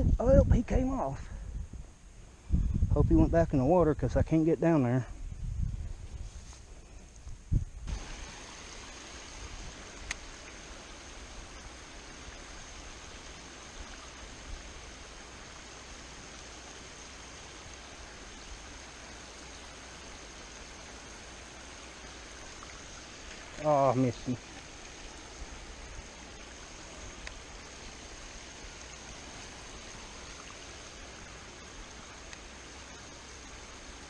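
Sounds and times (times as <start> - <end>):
creek water rushing: 7.9 - 34.0.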